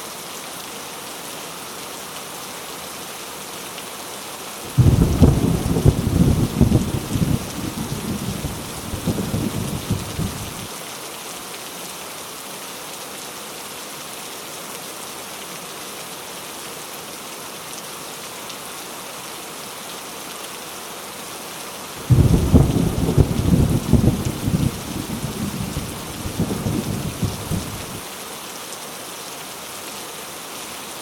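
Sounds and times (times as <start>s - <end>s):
heavy rain falling: 0.2s - 16.9s, 17.5s - 31.0s
thunder rumbling: 4.7s - 10.7s, 22.0s - 28.0s.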